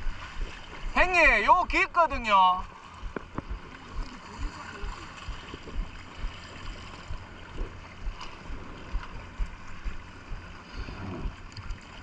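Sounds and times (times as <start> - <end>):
seawater sloshing and lapping: 0.0 - 12.0
low thumps: 3.0 - 11.5.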